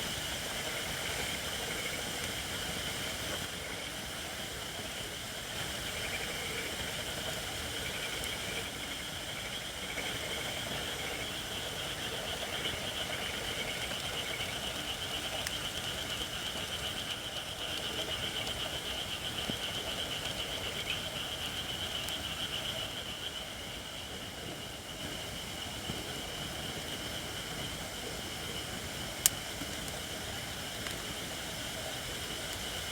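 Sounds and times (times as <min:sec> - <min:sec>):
campfire hissing steam: 0:00.0 - 0:32.9
faint fire pops: 0:28.8 - 0:31.2.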